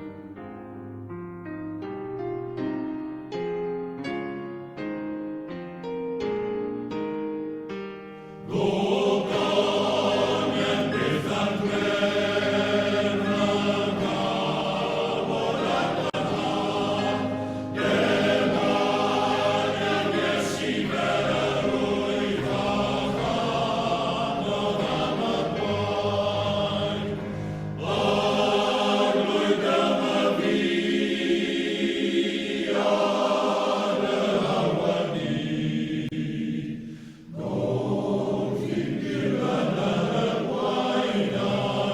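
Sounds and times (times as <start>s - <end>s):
male voice choir singing: 8.4s - 41.9s.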